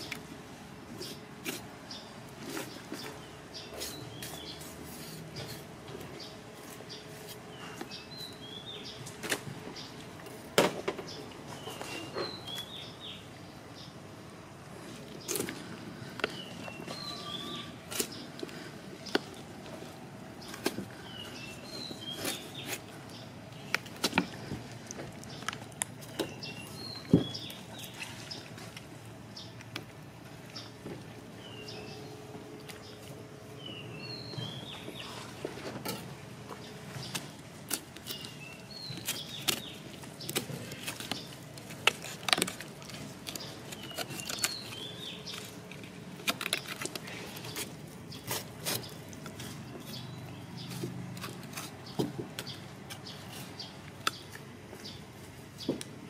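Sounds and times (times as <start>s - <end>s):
small bird chirping: 16.3s - 18.2s.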